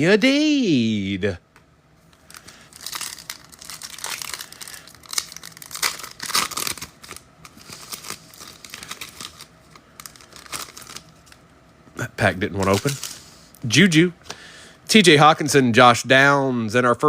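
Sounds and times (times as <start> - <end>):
wrapper crinkling and tearing: 2.3 - 11.4, 12.5 - 13.3.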